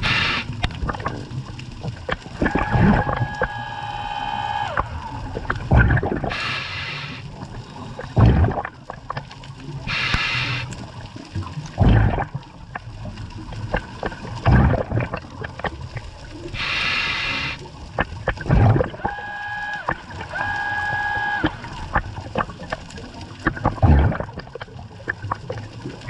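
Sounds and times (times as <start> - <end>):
exhaled bubbles hissing: 0.0 - 26.0.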